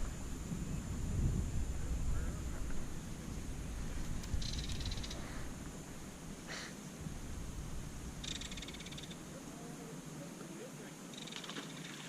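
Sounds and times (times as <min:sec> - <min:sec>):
wind rumble on microphone: 0:00.0 - 0:06.4, 0:07.0 - 0:09.4.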